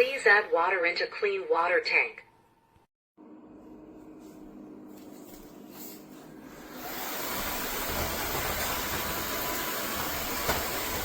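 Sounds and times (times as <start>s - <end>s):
vacuum mop suction motor: 6.4s - 11.0s.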